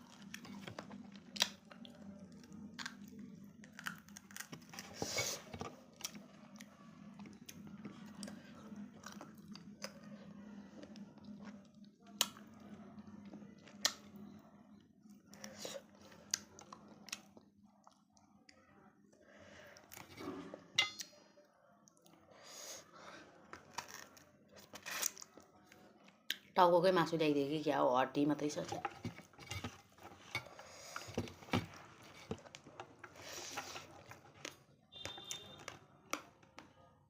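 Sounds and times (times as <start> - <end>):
teeth crunching on bone: 0.0 - 4.9.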